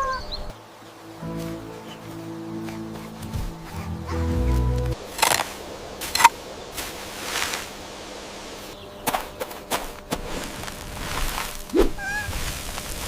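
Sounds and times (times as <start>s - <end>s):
sharp clicks: 5.2s - 5.5s.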